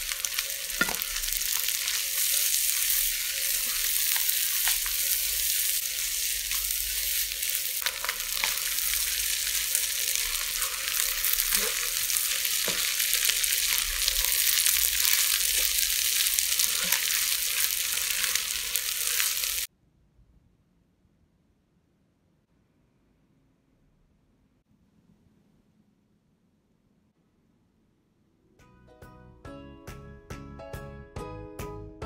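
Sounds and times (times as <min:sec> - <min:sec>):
rice sizzling in a wok: 0:00.0 - 0:19.7
spatula scraping and knocking: 0:10.2 - 0:19.3.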